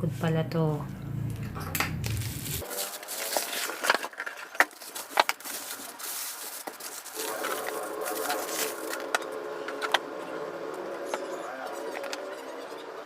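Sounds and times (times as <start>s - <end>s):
packaging crinkling and rustling: 2.0s - 9.2s.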